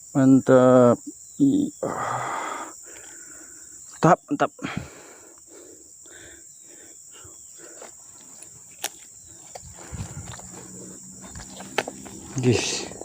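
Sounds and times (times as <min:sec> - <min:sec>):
high-pitched insect chirring: 0:00.0 - 0:13.0
rustling: 0:07.6 - 0:12.6.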